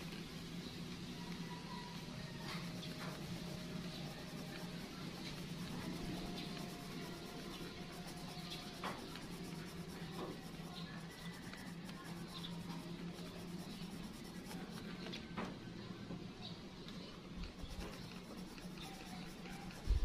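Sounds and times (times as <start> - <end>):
steady low hum: 0.0 - 15.8
pencil scratching on paper: 2.4 - 15.3, 17.4 - 20.0.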